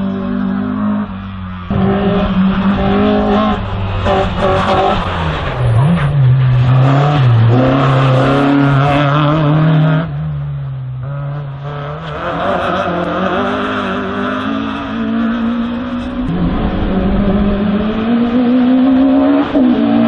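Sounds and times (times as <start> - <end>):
race car engine revving: 0.0 - 20.0.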